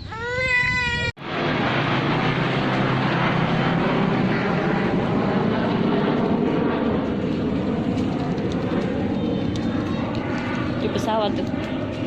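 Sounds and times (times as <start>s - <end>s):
airplane engine flying overhead: 0.0s - 12.0s.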